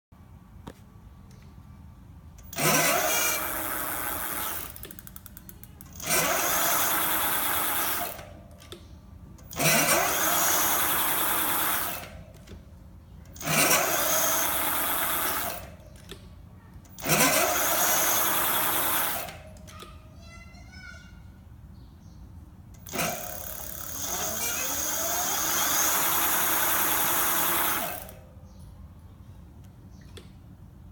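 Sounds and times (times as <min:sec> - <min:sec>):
electric hub motor whine: 0:02.4 - 0:05.2, 0:05.8 - 0:08.6, 0:09.4 - 0:12.6, 0:13.3 - 0:16.1, 0:16.8 - 0:19.6, 0:22.8 - 0:28.3.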